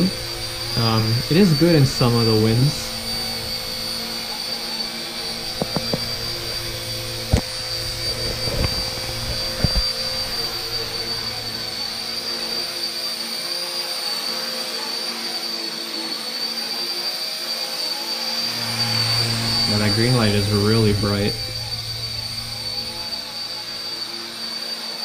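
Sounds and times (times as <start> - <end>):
rc helicopter whine: 0.0 - 25.0.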